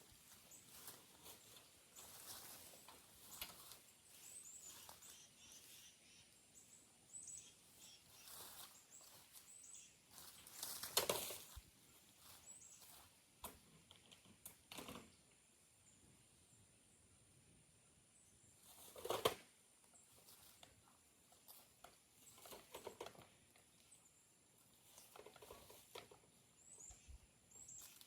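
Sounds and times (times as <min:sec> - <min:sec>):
rustling and crunching: 0:00.0 - 0:05.9, 0:07.6 - 0:15.0, 0:18.6 - 0:24.0, 0:24.6 - 0:26.8, 0:27.5 - 0:28.0
small birds chirping: 0:00.0 - 0:14.2, 0:19.8 - 0:28.0.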